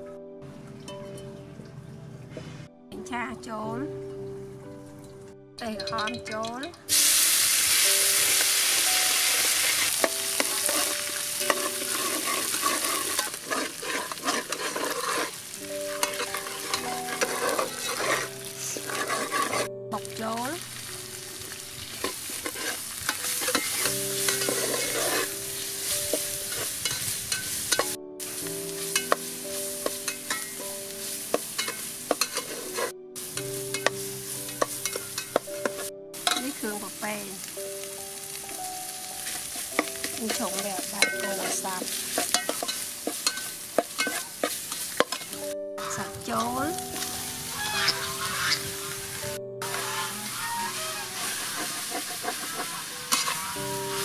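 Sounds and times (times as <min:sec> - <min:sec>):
paste sizzling in oil: 0:06.9 - 0:54.0
metal ladle scraping pot: 0:09.3 - 0:19.8, 0:21.9 - 0:36.5, 0:39.2 - 0:54.0.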